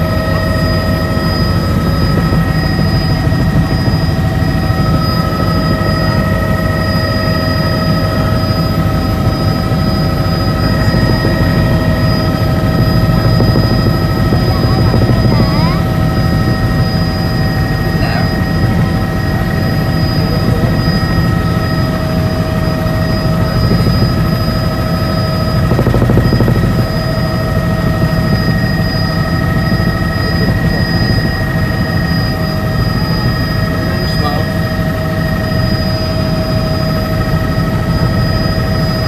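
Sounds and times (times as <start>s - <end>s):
helicopter engine and rotor drone: 0.0s - 39.0s
high-pitched whines: 0.0s - 39.0s.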